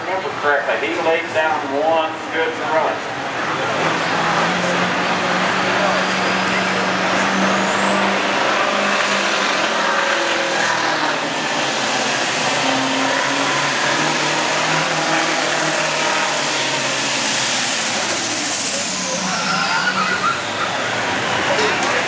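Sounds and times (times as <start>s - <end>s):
tractor engine droning under load: 2.9s - 22.0s
thin high whine: 17.5s - 21.7s.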